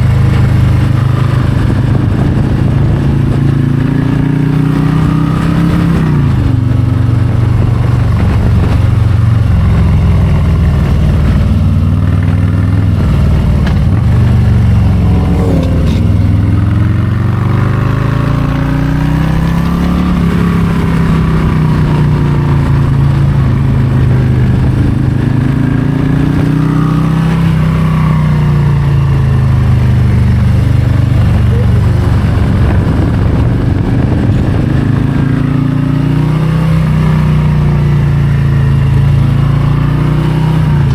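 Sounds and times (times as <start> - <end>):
motorcycle engine revving: 10.7 - 40.9.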